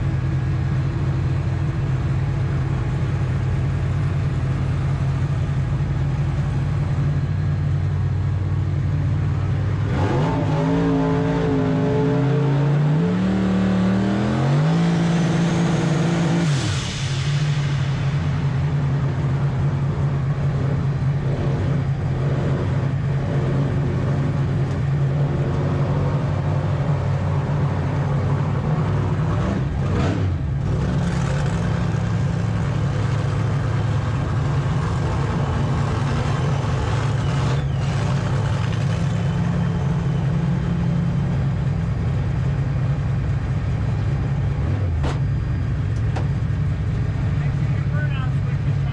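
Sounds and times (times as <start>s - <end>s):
steady engine drone: 0.0s - 48.9s
race car engine revving: 9.7s - 41.7s.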